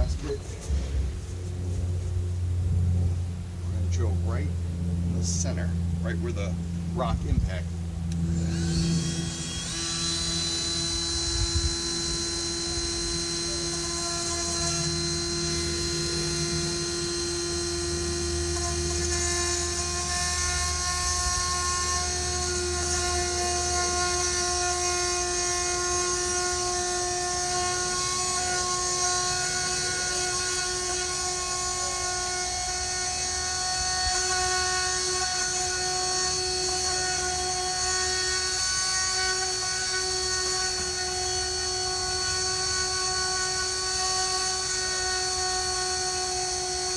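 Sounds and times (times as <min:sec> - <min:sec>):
rotary tool whining: 0:00.0 - 0:46.9.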